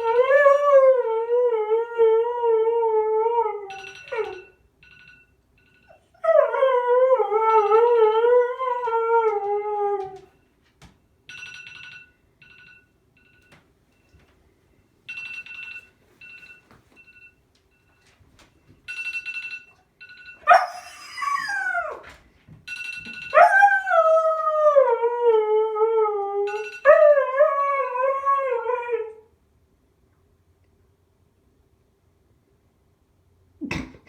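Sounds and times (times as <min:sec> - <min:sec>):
dog howling: 0:06.2 - 0:10.3, 0:20.5 - 0:22.1, 0:23.4 - 0:29.2
phone alarm beeping: 0:11.3 - 0:20.5.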